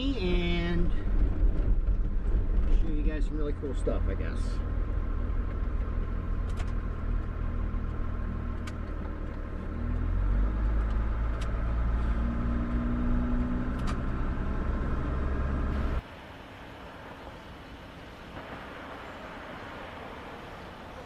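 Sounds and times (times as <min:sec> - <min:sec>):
road rumble: 0:00.0 - 0:21.0
truck engine running: 0:13.6 - 0:16.0.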